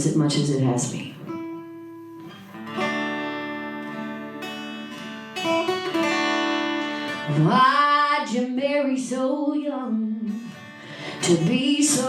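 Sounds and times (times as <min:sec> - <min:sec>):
acoustic guitar chords ringing: 0:01.0 - 0:09.3.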